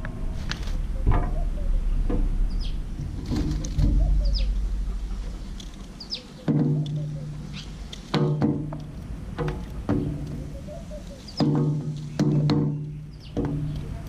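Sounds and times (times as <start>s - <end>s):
low rumble: 0.0s - 10.8s
small birds chirping: 0.0s - 14.0s.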